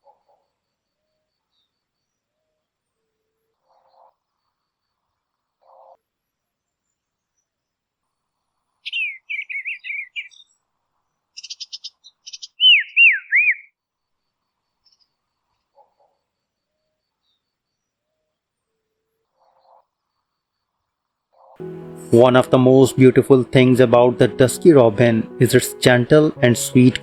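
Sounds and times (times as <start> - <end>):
songbird singing: 8.8 - 10.6, 11.4 - 13.7
bird whistles swooping: 12.6 - 13.7.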